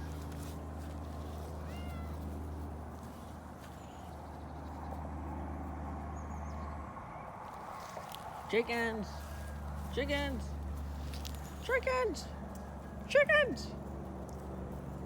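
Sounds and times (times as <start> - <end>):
cat meowing: 1.6 - 2.2.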